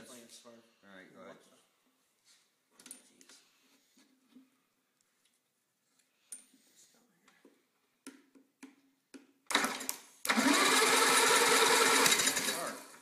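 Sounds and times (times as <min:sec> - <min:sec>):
lawnmower engine running: 0:09.5 - 0:13.0.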